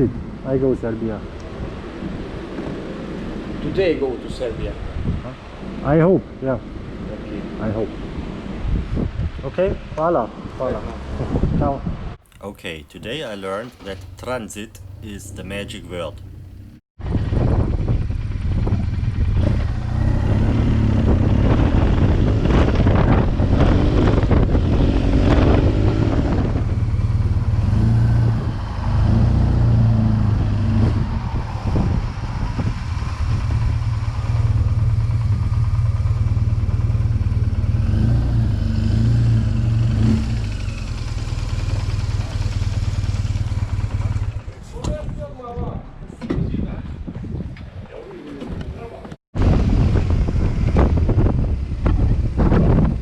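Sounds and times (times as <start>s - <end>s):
motorcycle engine running: 13.7s - 24.8s, 31.8s - 44.7s.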